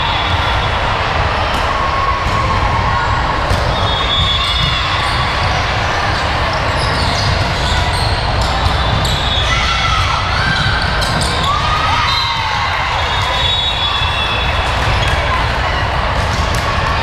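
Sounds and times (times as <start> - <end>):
spectator chatter: 0.0 - 17.0
sneakers squeaking on court: 3.6 - 9.6, 10.2 - 15.4.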